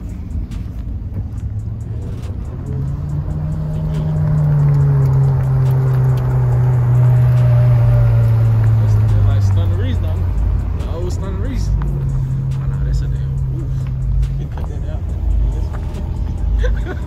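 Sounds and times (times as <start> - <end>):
car engine at low revs: 0.0 - 17.0.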